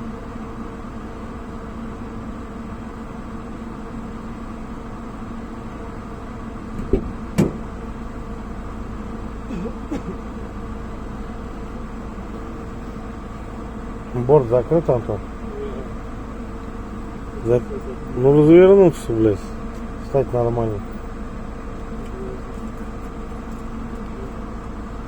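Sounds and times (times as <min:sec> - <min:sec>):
vehicle engine droning: 0:00.0 - 0:25.0
sharp knocks: 0:06.8 - 0:07.8.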